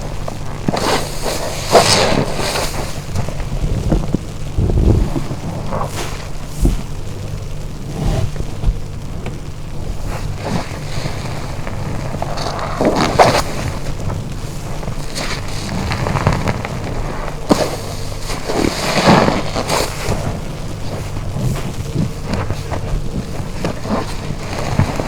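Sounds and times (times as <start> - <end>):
steady low hum: 0.0 - 25.0
wet sponge squelching and splashing: 0.6 - 3.4.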